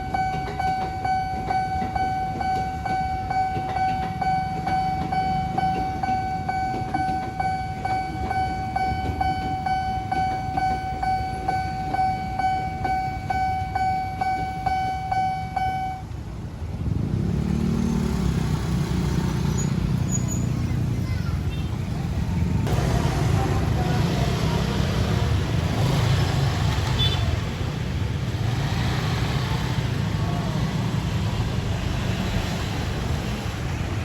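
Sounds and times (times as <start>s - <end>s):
level crossing alarm bell ringing: 0.0s - 16.1s
low rumble of traffic: 0.0s - 34.0s.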